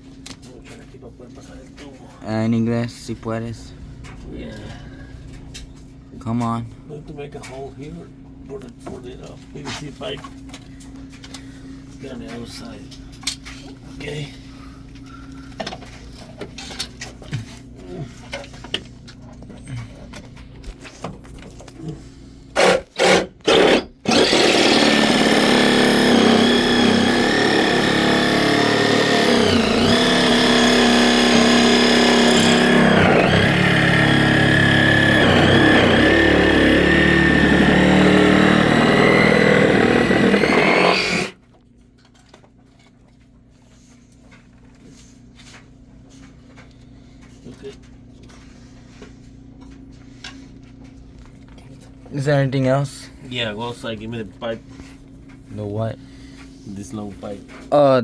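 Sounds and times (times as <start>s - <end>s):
electric drill boring: 22.6s - 41.4s.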